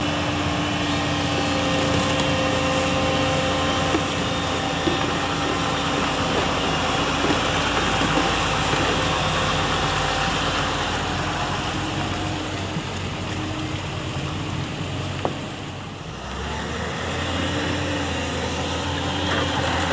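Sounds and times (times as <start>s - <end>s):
heavy diesel engine running: 0.0s - 19.9s.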